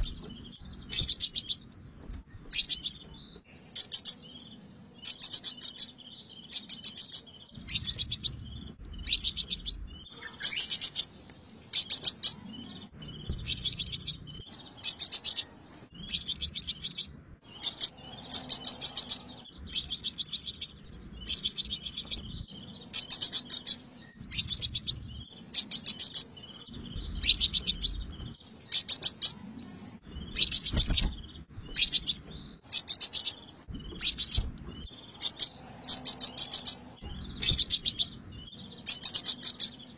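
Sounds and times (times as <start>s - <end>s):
sunbird chirping: 0.0s - 39.9s.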